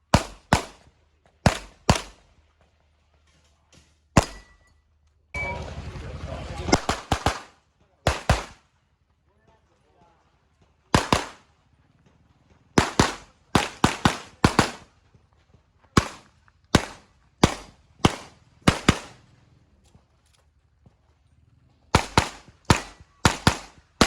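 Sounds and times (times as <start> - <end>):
handgun shots: 1.4 - 2.2, 4.2 - 4.6, 8.1 - 8.6, 11.0 - 11.4, 12.8 - 14.8, 22.0 - 23.8.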